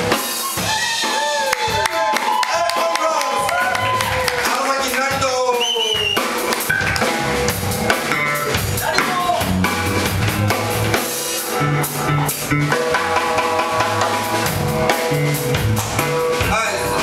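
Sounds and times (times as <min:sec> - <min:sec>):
drum kit: 0:00.0 - 0:17.0
funk band playing: 0:00.0 - 0:17.0
bass line: 0:05.9 - 0:17.0.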